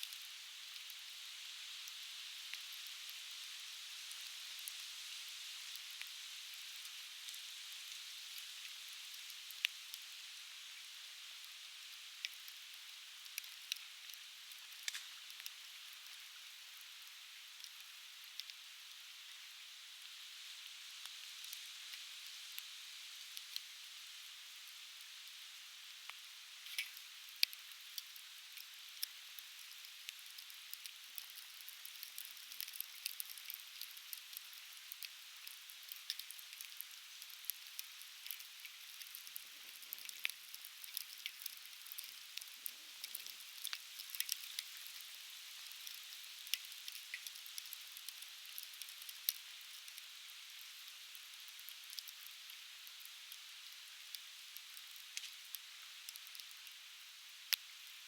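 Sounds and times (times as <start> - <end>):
campfire crackling and popping: 13.3 - 16.0, 26.1 - 53.4, 54.0 - 56.8.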